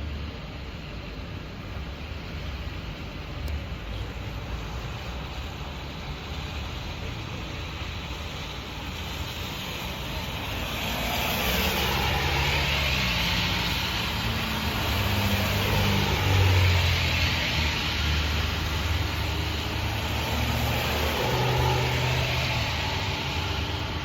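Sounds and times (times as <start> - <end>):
vehicle engine approaching: 10.8 - 24.0.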